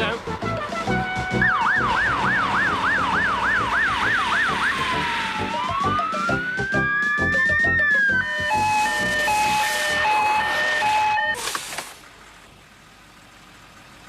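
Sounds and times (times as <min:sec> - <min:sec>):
fire engine siren wailing: 0:00.4 - 0:11.4.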